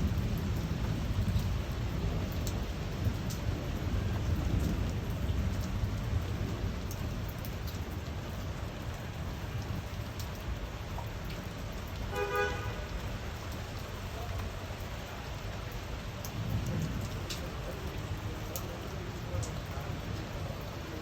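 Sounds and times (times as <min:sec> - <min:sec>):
rain falling: 0:00.0 - 0:21.0
vehicle horn toot: 0:12.1 - 0:12.9.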